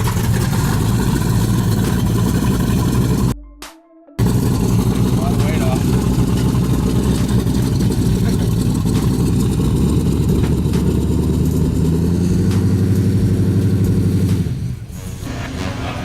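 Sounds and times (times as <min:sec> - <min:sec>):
engine idling with exhaust rumble: 0:00.0 - 0:03.4, 0:04.2 - 0:15.3.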